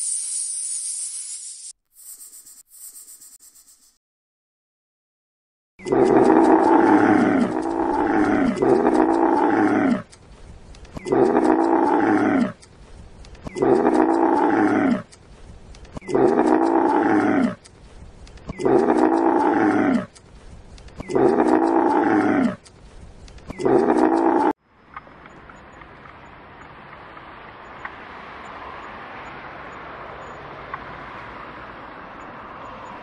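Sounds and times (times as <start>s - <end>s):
camel calling: 5.8s - 10.2s, 10.9s - 12.7s, 13.4s - 15.2s, 16.0s - 17.7s, 18.5s - 20.2s, 21.0s - 22.7s, 23.5s - 24.6s.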